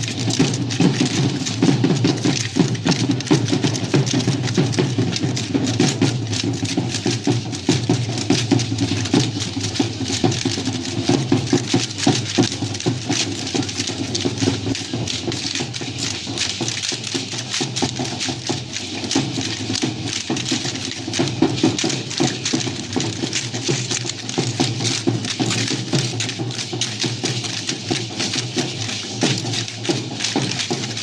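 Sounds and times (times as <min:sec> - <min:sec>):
dancers stamping steps: 0:00.0 - 0:31.0
steady drum beat: 0:00.0 - 0:31.0.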